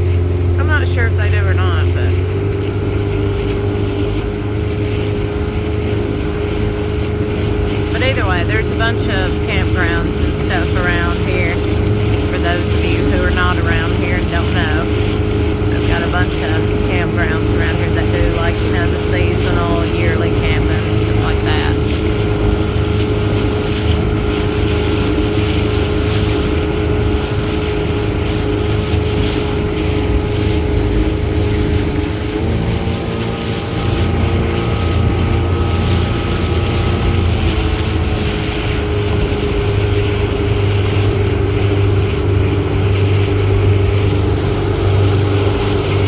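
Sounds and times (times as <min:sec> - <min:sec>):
motorboat engine running: 0:00.0 - 0:46.0.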